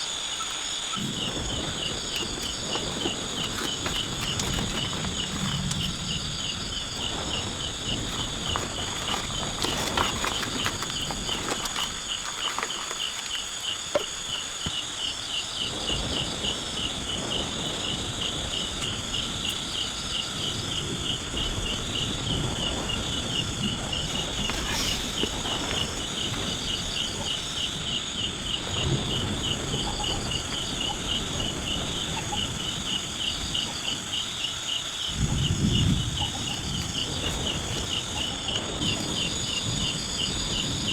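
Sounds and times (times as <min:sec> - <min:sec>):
insects chirping: 0:00.0 - 0:40.9
low rustling: 0:00.9 - 0:14.6.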